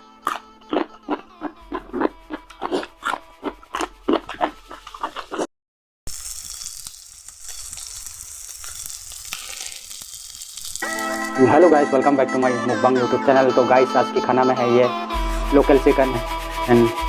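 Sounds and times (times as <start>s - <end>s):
chewing and crunching food: 0.2s - 5.5s
chicken sizzling in hot oil: 6.1s - 12.0s.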